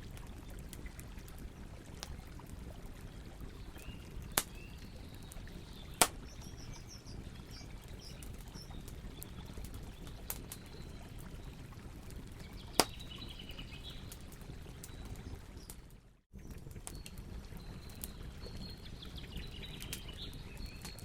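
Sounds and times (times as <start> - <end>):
campfire crackling: 0.0 - 21.0
faint bird chirps: 3.8 - 11.2
sharp fire pops: 6.0 - 6.4, 12.8 - 13.0.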